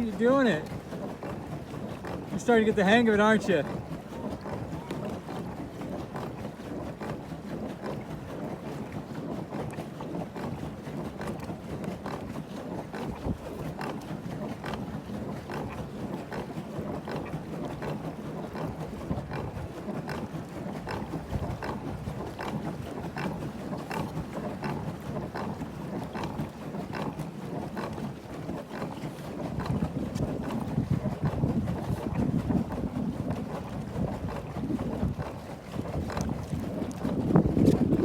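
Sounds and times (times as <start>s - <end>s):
water splashing against kayak: 0.0s - 38.0s
wind buffeting microphone: 12.9s - 13.8s, 16.8s - 38.0s.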